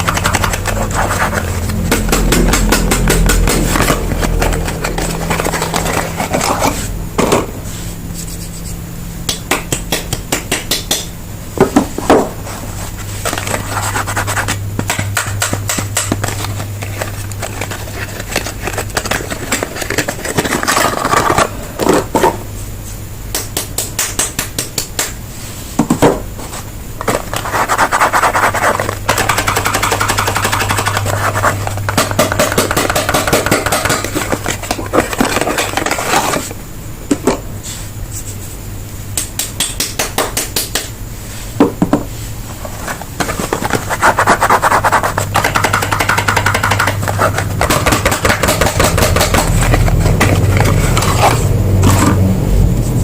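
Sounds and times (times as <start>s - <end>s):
steady low hum: 0.0s - 53.0s
sharp knocks: 45.3s - 51.1s.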